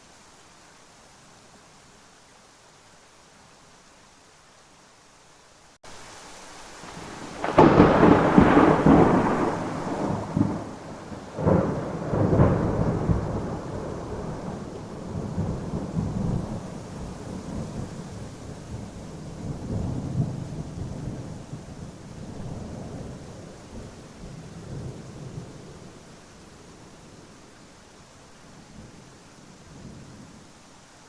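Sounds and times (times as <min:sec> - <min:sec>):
steady rain: 0:00.0 - 0:31.0
thunder claps and rumbling: 0:06.9 - 0:25.7.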